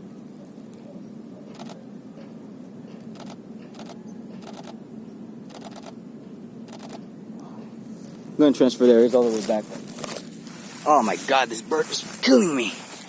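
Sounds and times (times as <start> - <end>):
camera shutter clicking bursts: 3.1 - 4.8, 5.5 - 6.0, 6.7 - 7.0.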